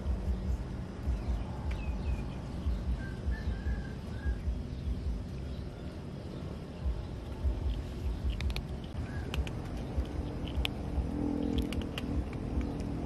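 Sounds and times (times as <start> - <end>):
low uneven rumble: 0.0 - 13.0
faint bird chirps: 0.1 - 10.1.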